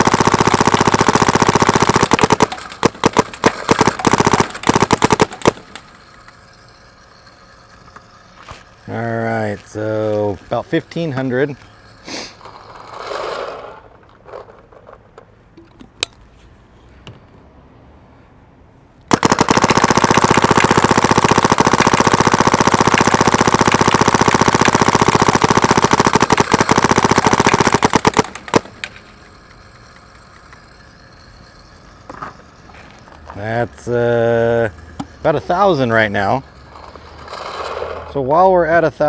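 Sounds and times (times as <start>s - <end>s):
paintball gun rapid firing: 0.0s - 7.7s, 19.1s - 32.3s.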